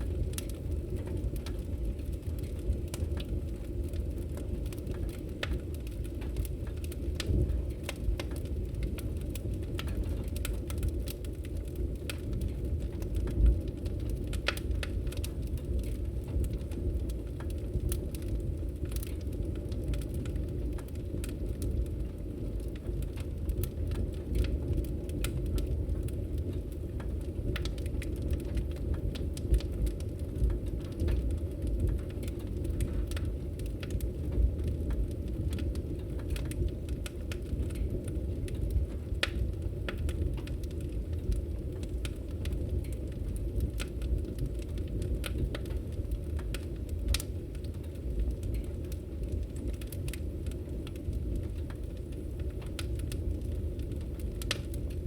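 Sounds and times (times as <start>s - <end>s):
wood fire crackling: 0.0s - 55.0s
sharp pops and snaps: 54.0s - 54.9s.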